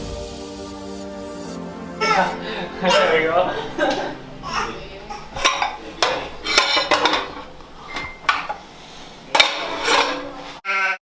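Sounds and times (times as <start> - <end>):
hard objects clinking together: 2.0 - 10.6.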